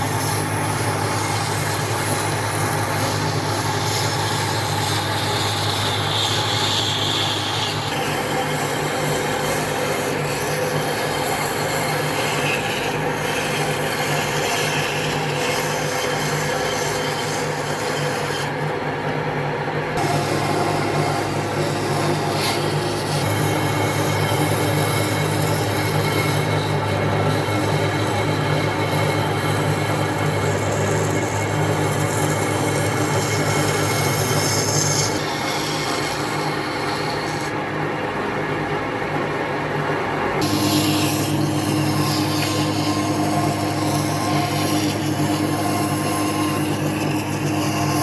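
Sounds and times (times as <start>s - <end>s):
power tool grinding wood: 0.0s - 48.0s.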